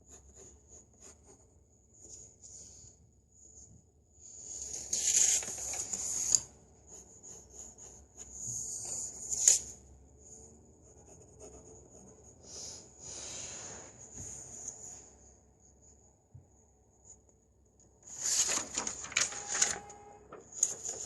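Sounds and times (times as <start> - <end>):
pencil scratching on paper: 0.0 - 1.6, 4.6 - 9.6, 10.8 - 12.9.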